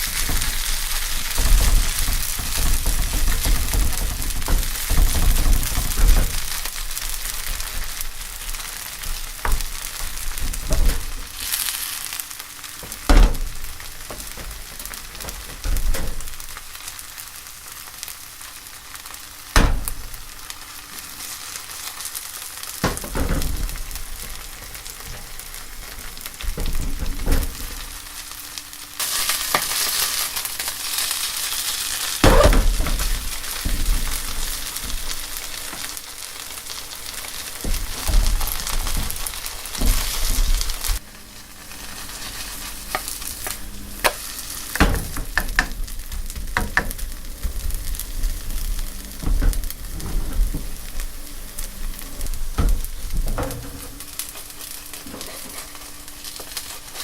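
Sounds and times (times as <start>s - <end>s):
sharp knocks: 0.0s - 6.8s, 12.8s - 16.5s, 19.6s - 20.3s, 32.2s - 35.8s
batter sizzling in oil: 0.0s - 57.0s.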